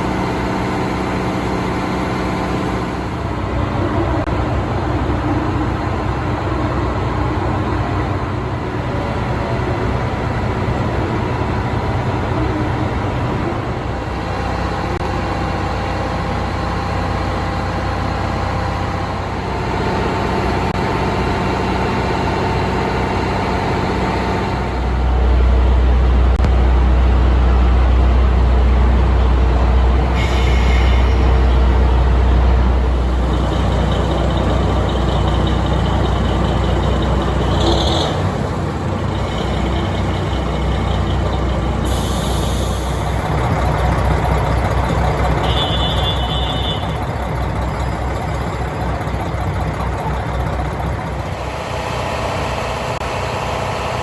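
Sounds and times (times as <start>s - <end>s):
deep engine rumble: 0.0s - 54.0s
diesel railcar engines idling: 0.0s - 54.0s
compressed air hisses: 41.8s - 43.2s.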